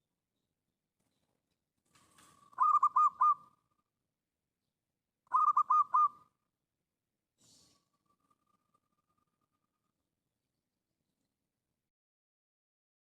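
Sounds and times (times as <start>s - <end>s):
bird calling: 2.5s - 3.6s, 5.3s - 6.3s.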